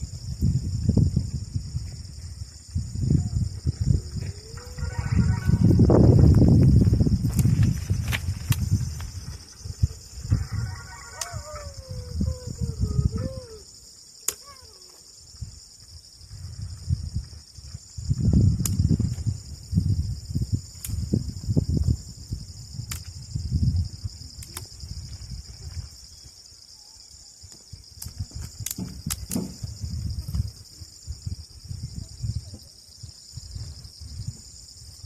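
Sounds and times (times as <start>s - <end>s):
crickets and insects chirping: 0.0s - 35.0s
low bumps: 0.8s - 10.5s.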